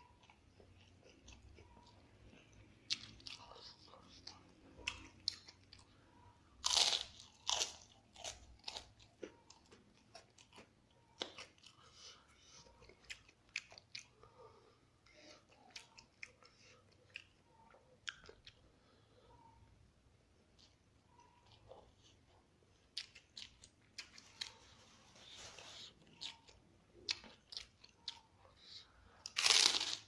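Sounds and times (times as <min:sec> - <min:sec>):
chewing with clicks: 0:00.1 - 0:14.4, 0:15.0 - 0:19.7, 0:20.5 - 0:30.0
crunchy bites: 0:06.6 - 0:09.6, 0:29.2 - 0:30.0.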